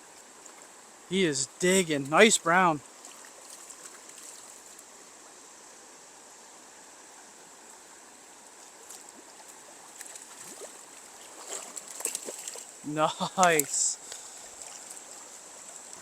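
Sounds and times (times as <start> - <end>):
river current rushing: 0.0 - 16.0
faint ticks: 8.5 - 10.5, 13.4 - 16.0.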